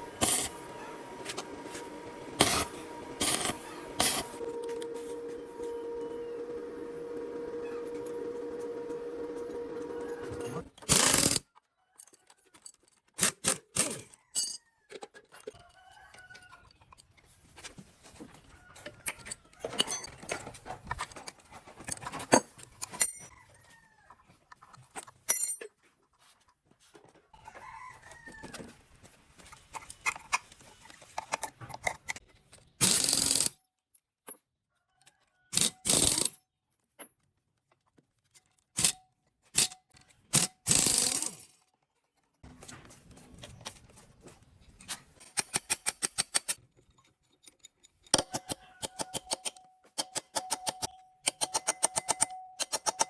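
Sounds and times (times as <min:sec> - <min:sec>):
tools and metal parts clicking: 0:00.1 - 0:00.7, 0:02.4 - 0:04.4, 0:18.8 - 0:23.3, 0:29.6 - 0:33.6, 0:35.6 - 0:36.4, 0:38.3 - 0:41.8, 0:44.8 - 0:53.0.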